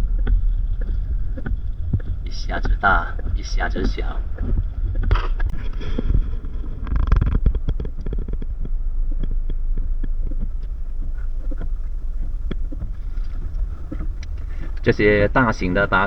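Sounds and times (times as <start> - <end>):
car cabin rumble: 0.0 - 16.0
raindrops tapping on car body: 0.0 - 16.0.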